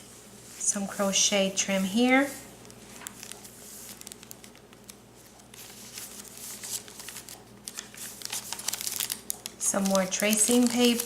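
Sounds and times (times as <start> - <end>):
paper pages rustling: 2.6 - 11.0.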